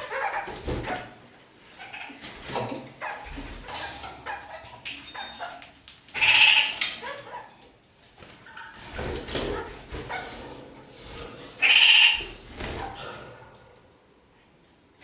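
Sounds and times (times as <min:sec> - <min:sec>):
parakeets chattering: 0:03.7 - 0:07.6, 0:11.6 - 0:12.4.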